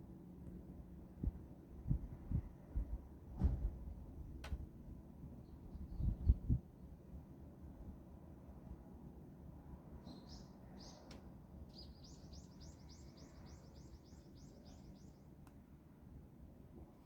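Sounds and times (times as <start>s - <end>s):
songbird chirping and trilling: 10.0s - 15.3s.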